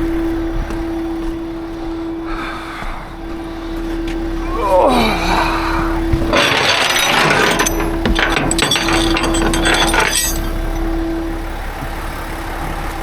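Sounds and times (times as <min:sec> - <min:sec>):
steady hum: 0:00.0 - 0:13.0
broken glass scraping and clinking: 0:06.3 - 0:11.0.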